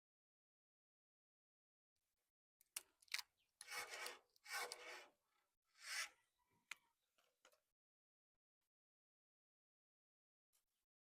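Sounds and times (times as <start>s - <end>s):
scraping strokes: 3.6s - 5.2s.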